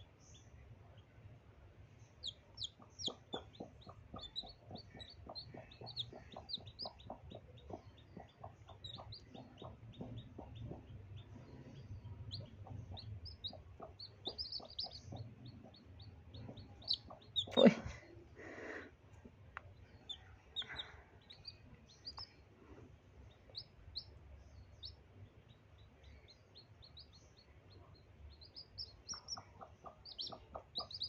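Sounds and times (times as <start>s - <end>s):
chicks peeping: 2.0s - 17.9s, 20.0s - 22.4s, 23.3s - 31.0s
hen clucking: 2.2s - 17.8s, 28.3s - 31.0s.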